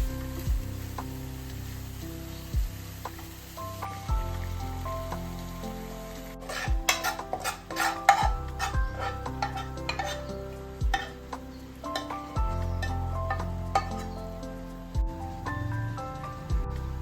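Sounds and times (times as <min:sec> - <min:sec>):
light sizzle: 0:00.0 - 0:17.0
soft background music: 0:00.0 - 0:17.0
utensil scraping a frying pan: 0:06.3 - 0:14.5.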